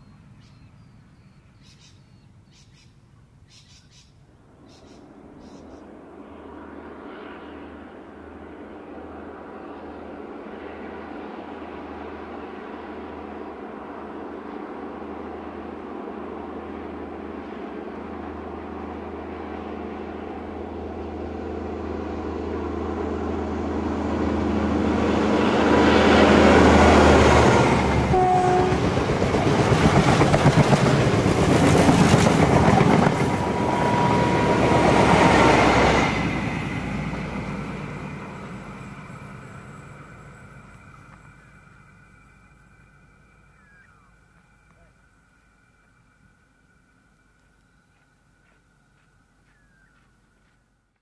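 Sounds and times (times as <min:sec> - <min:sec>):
diesel locomotive drone: 0:00.0 - 0:51.0
train wheels clacking over rails: 0:25.6 - 0:41.4.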